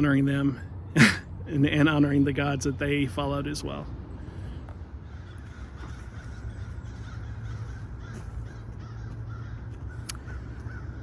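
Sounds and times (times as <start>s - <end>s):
crows cawing: 4.4s - 11.0s.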